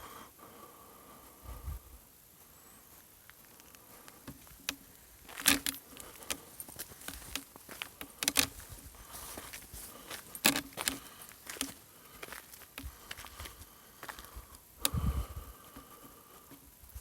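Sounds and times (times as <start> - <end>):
footsteps crunching over debris: 2.4 - 14.6.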